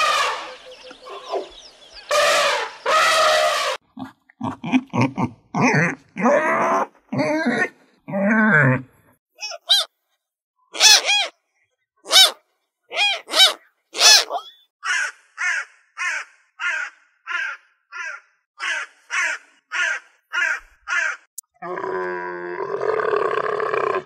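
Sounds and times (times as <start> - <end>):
crows cawing: 0.0 - 3.8, 14.8 - 21.3.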